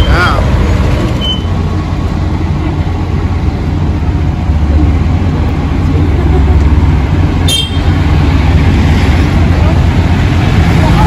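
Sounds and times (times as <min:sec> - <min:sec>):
motor vehicle running: 0:00.0 - 0:11.0.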